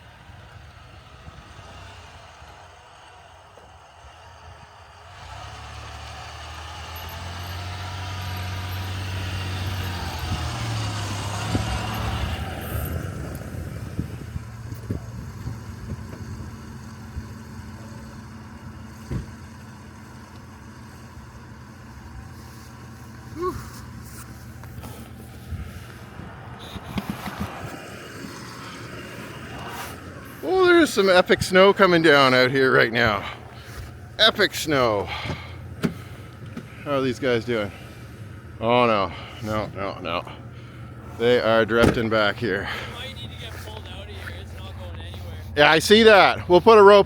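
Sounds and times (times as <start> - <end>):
truck engine revving: 0.1 - 47.0
knocks and clunks: 18.9 - 19.6, 35.1 - 36.8, 41.7 - 43.8.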